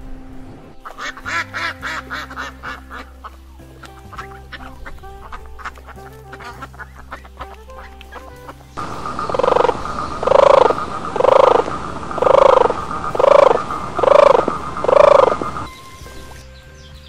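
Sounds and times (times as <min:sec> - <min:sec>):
steady high hum: 0:08.8 - 0:16.4.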